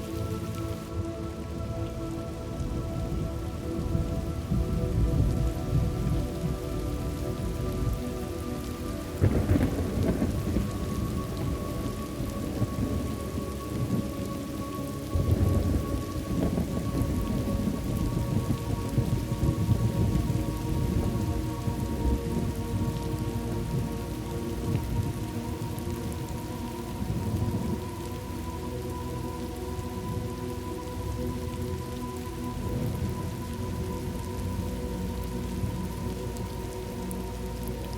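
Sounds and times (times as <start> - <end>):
steady rain: 0.0 - 37.9
thunder rolling: 9.2 - 13.2, 15.2 - 22.6.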